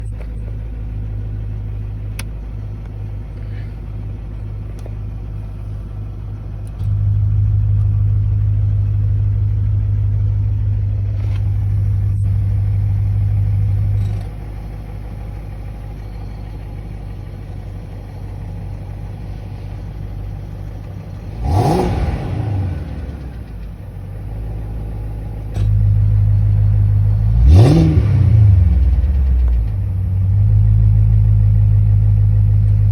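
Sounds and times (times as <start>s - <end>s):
car engine idling: 0.0s - 32.9s
engine throttle blip: 0.0s - 32.9s.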